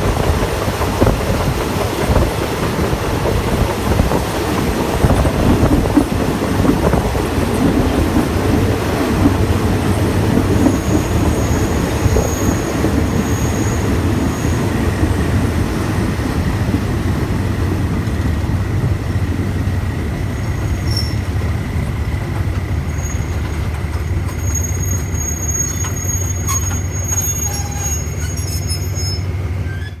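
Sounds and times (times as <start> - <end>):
train wheels rumbling on rails: 0.0 - 30.0
high-pitched squeal: 24.3 - 30.0.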